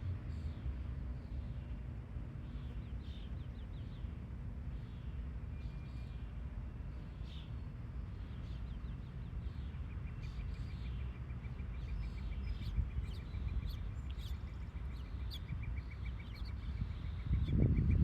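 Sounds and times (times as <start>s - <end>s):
steady low rumble: 0.0s - 5.7s
small birds chirping: 6.9s - 18.0s.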